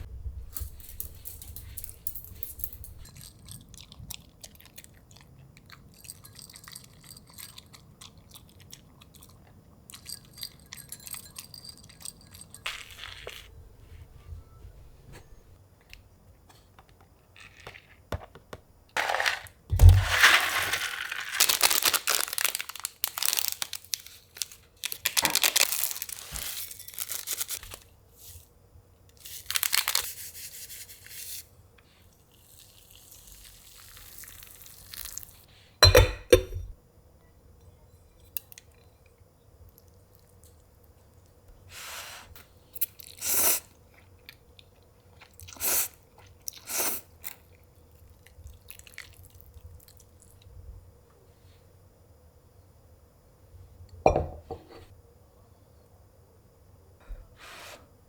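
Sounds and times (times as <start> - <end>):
rustling crinkling and tearing: 19.8 - 27.8, 29.2 - 30.2.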